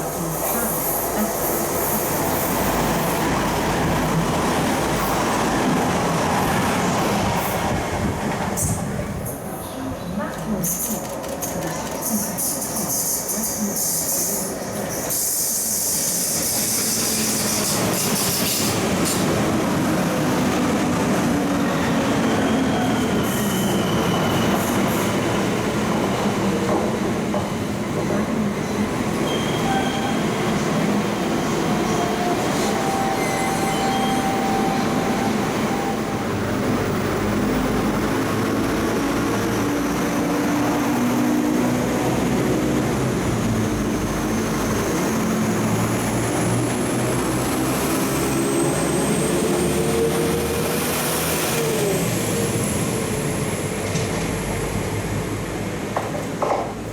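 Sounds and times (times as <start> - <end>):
train wheels rumbling on rail: 0.0 - 56.9
high-pitched wheel squeals: 32.5 - 36.0.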